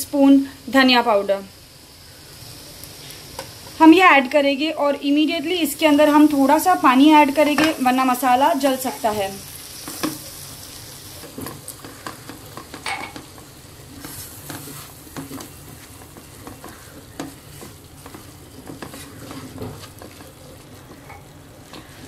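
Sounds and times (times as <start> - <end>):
spices sizzling in oil: 0.0 - 22.0
spatula scraping a pan: 11.1 - 22.0.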